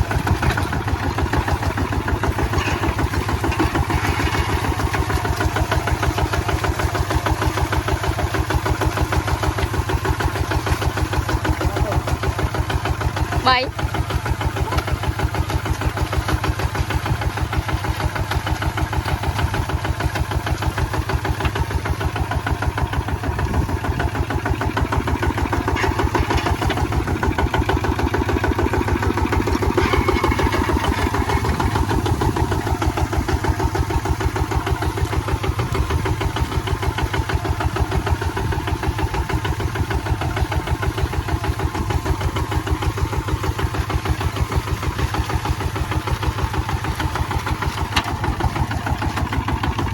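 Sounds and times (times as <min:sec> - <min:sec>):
diesel tractor engine chugging: 0:00.0 - 0:49.9.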